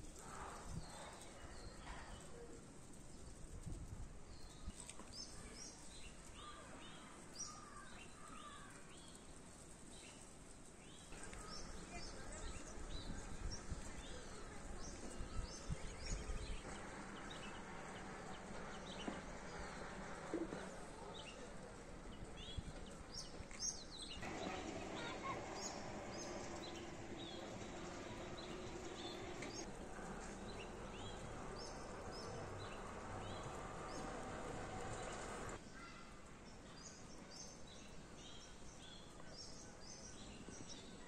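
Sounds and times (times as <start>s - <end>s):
small birds chirping: 4.3s - 41.0s
steady outdoor hum: 10.6s - 35.8s
low rumbling: 24.1s - 35.6s.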